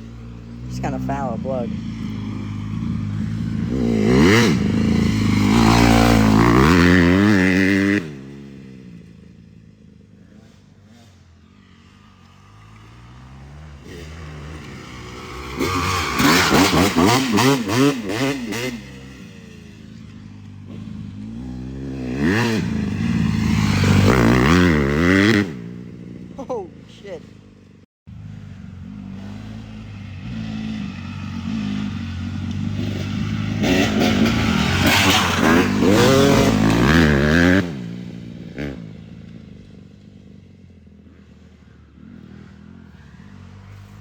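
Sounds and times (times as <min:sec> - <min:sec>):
dirt bike engine revving: 0:00.0 - 0:27.6, 0:28.2 - 0:39.7.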